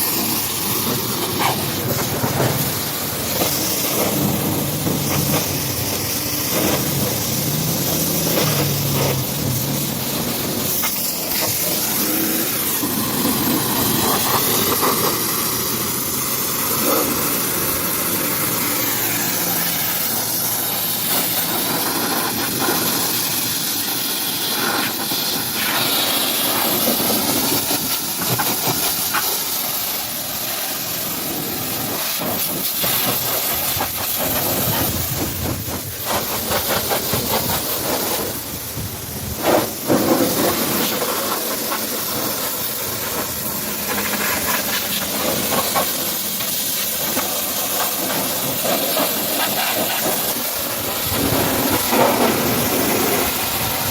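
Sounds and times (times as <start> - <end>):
pressure washer spraying water: 0.0 - 53.9.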